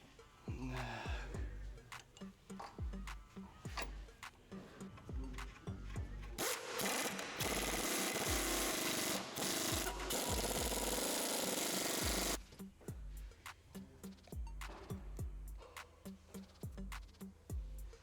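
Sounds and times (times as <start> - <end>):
background music with beat: 0.0 - 18.0
power tool rattling: 6.4 - 12.4.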